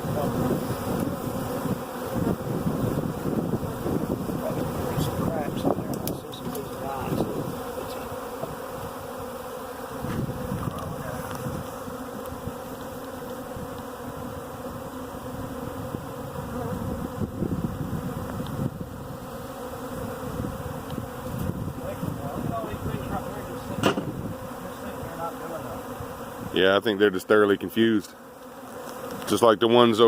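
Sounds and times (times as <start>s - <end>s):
swarm of bees buzzing: 0.0s - 30.0s.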